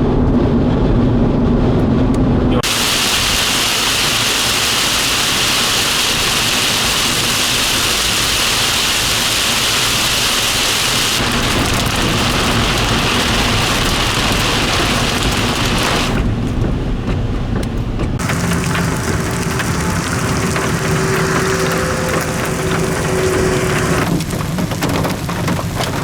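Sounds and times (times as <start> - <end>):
heavy rain on a vehicle: 2.6 - 26.0
low rumble: 17.9 - 24.6.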